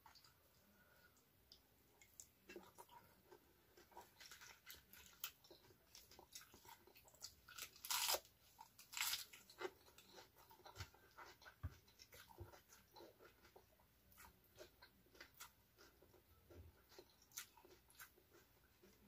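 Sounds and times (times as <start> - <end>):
person chewing raw vegetables: 0.0 - 19.0
loud crunching bites: 7.6 - 9.3.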